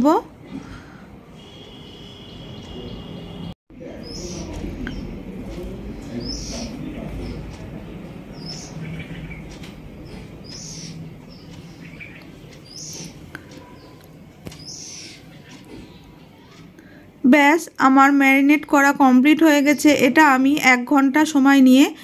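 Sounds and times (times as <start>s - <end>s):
bird chirping: 1.4s - 16.3s.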